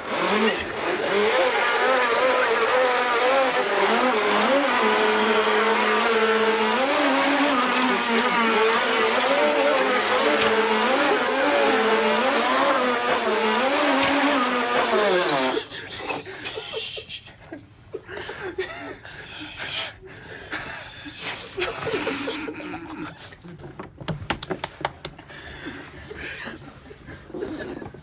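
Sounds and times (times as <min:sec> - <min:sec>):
toy boat motors whining: 0:00.0 - 0:15.8.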